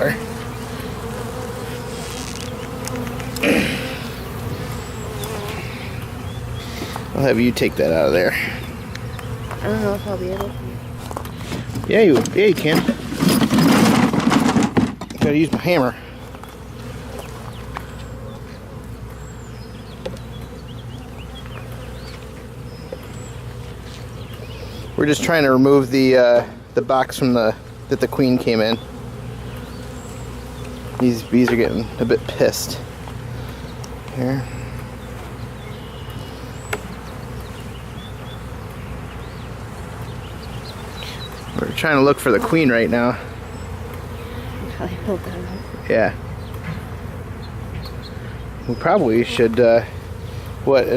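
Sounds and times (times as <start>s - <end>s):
bees buzzing: 0.0s - 50.9s.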